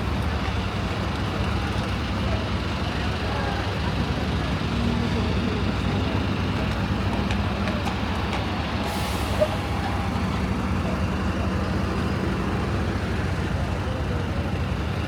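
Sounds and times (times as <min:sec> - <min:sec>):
heavy vehicle engine running: 0:00.0 - 0:15.0
air brake hiss: 0:08.8 - 0:09.6.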